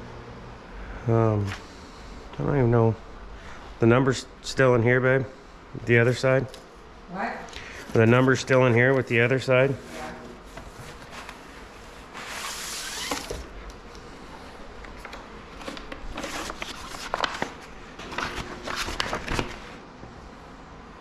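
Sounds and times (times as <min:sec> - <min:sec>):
rustling and crinkling packaging: 0:14.8 - 0:19.8.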